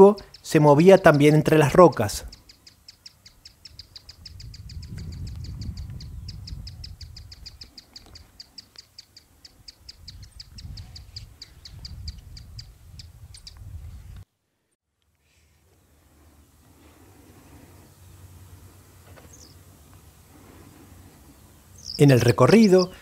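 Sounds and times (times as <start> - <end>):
small bird chipping: 0.0 - 13.7, 21.8 - 23.0
wind rumble on microphone: 3.6 - 8.4, 9.7 - 14.3.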